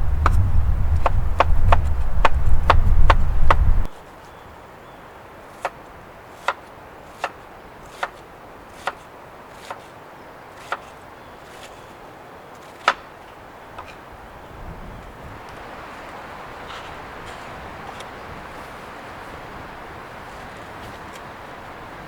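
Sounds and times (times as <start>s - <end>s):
heavy low rumble: 0.0s - 3.9s
blade chopping wood: 0.1s - 3.8s, 6.4s - 8.2s, 8.8s - 9.9s, 10.6s - 11.9s, 12.6s - 14.0s.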